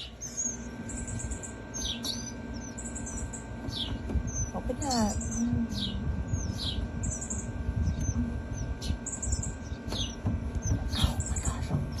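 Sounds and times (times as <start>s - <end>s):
low handling rumble: 0.0s - 12.0s
nestling birds cheeping: 0.0s - 12.0s.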